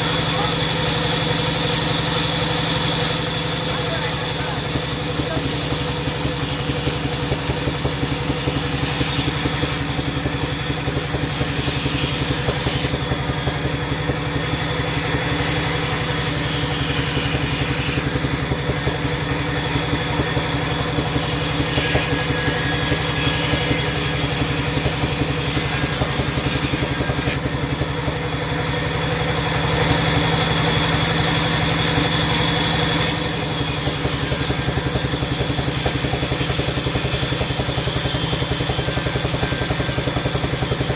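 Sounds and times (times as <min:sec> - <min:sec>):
sawmill machinery drone: 0:00.0 - 0:40.9.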